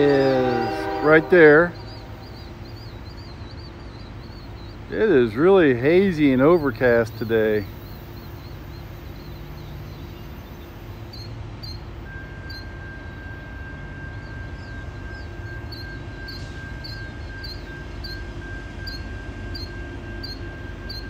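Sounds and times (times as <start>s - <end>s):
thin high whine: 0.0s - 3.8s
freight train rumble: 0.0s - 21.0s
small bird chirping: 1.4s - 11.9s.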